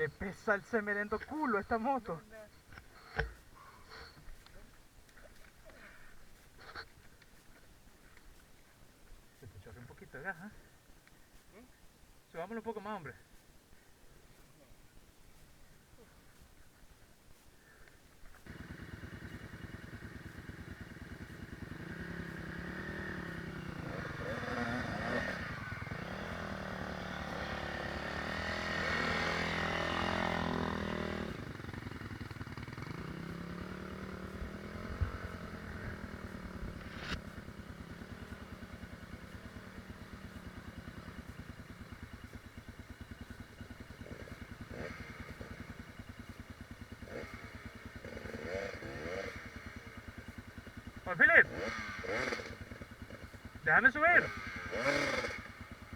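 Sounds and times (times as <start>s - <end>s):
dirt bike engine revving: 18.4s - 55.9s.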